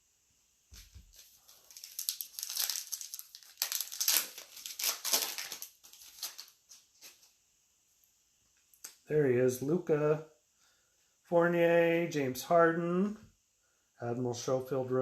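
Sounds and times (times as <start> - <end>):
foil wrapper crinkling and tearing: 0.8 - 7.3.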